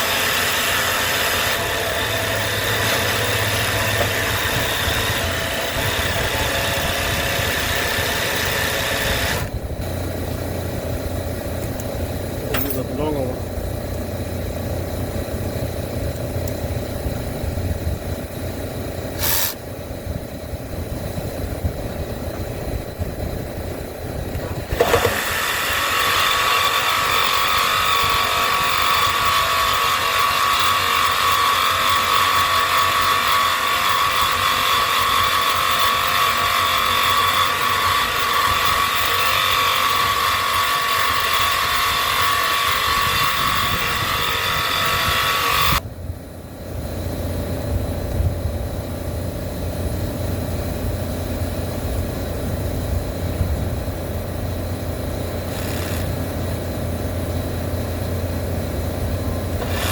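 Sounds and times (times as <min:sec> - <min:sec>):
reciprocating saw cutting metal: 0:00.0 - 0:09.6, 0:19.1 - 0:19.6, 0:24.4 - 0:45.8, 0:55.4 - 0:56.4, 0:59.5 - 0:59.9.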